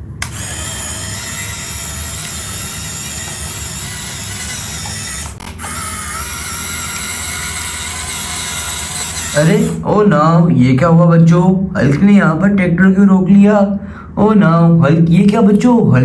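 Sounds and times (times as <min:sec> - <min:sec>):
toy motor whine and gear rattle: 0:00.2 - 0:09.8.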